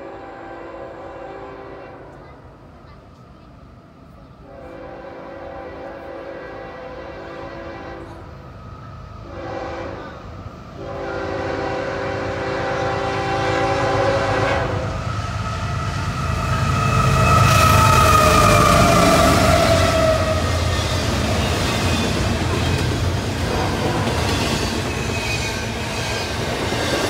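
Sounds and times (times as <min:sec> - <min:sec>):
train air horn blasts: 0:00.0 - 0:02.1, 0:04.4 - 0:08.3, 0:09.2 - 0:15.1
diesel locomotives and wheels rumbling: 0:00.0 - 0:27.0.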